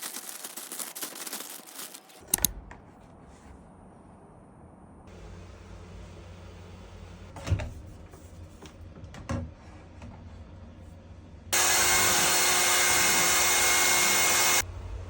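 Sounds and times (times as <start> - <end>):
hair dryer blowing: 11.6 - 14.6.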